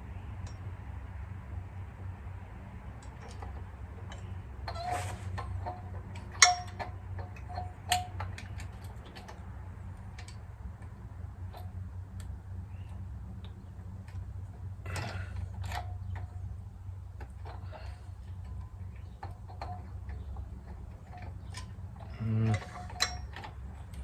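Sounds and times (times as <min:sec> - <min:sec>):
steady low hum: 0:00.0 - 0:24.0
metal parts clicking and clinking: 0:03.0 - 0:09.5, 0:14.9 - 0:16.5, 0:17.2 - 0:24.0
rattling scrape: 0:03.2 - 0:09.3, 0:17.3 - 0:24.0.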